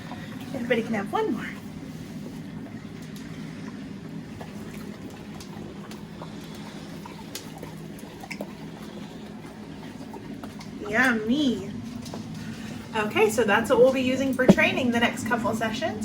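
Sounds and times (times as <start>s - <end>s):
dogs licking and chewing: 1.6s - 12.8s
steady low hum: 14.4s - 15.0s.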